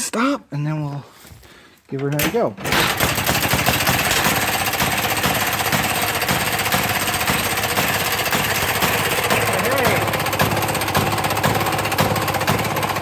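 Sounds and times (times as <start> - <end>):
two-stroke engine popping: 2.6 - 13.0.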